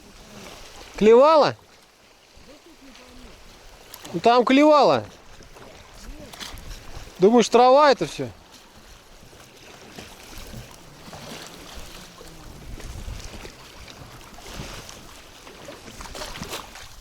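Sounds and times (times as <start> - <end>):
water lapping against boat: 0.0 - 17.0
wind gusting over microphone: 10.5 - 15.0.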